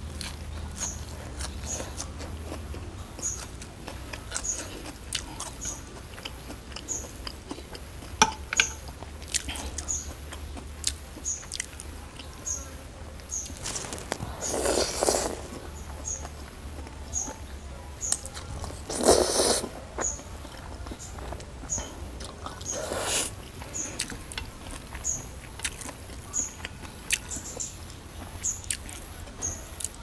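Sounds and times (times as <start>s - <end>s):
person chewing and crunching food: 0.0s - 12.4s, 13.2s - 30.0s.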